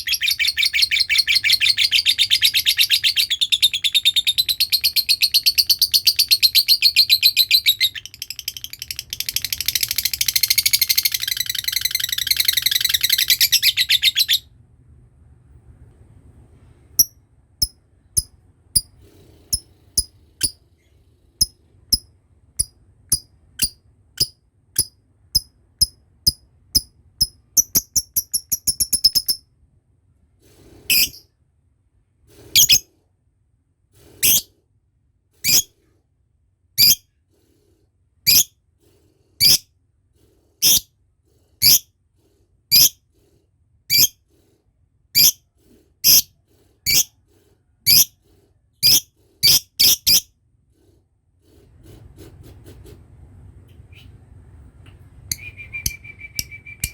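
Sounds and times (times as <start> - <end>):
lovebird shrill chirps and trill: 0.0 - 14.5, 30.9 - 31.2, 32.6 - 32.8, 35.4 - 35.7, 36.8 - 37.0, 38.3 - 38.5, 40.6 - 40.8, 41.6 - 41.8, 43.9 - 44.2, 45.2 - 45.4, 46.0 - 46.3, 46.9 - 47.1, 48.8 - 50.3.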